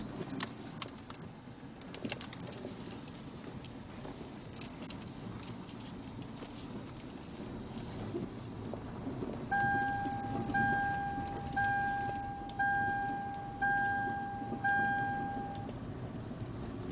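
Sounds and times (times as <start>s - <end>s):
low steady rumble: 0.0s - 16.9s
car warning chime dinging: 9.5s - 15.8s.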